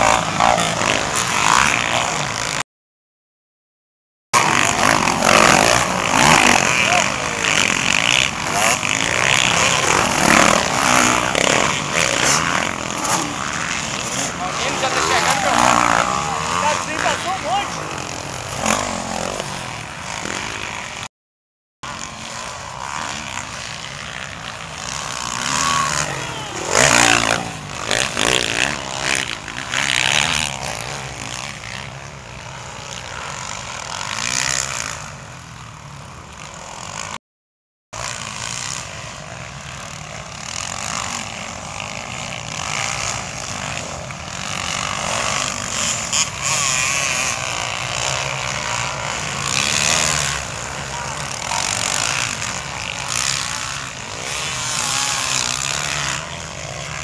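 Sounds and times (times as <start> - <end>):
motocross bikes racing past: 0.0 - 2.6, 4.4 - 21.1, 21.8 - 37.2, 38.0 - 57.0.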